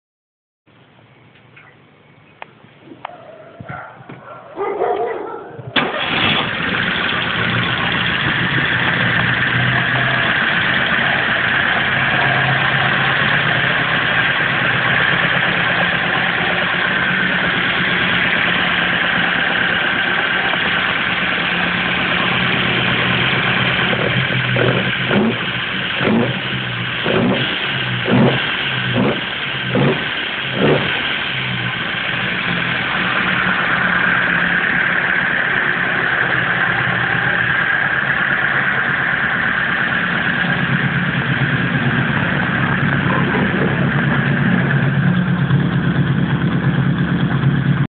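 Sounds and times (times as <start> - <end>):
car engine starting and idling: 0.8 - 47.9
engine revving blips: 5.7 - 47.9.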